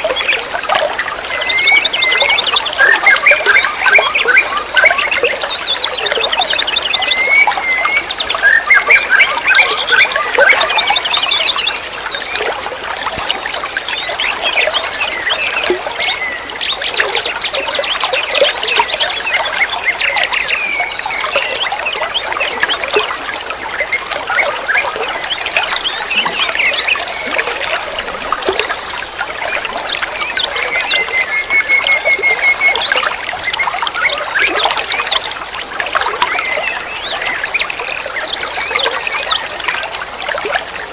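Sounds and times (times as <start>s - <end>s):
songbird singing: 0.0s - 39.8s.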